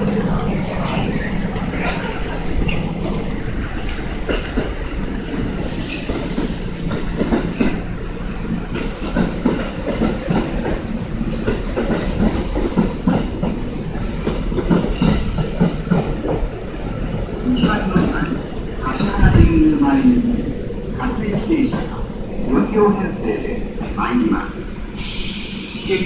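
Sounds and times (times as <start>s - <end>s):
train wheels clattering: 3.8s - 16.6s.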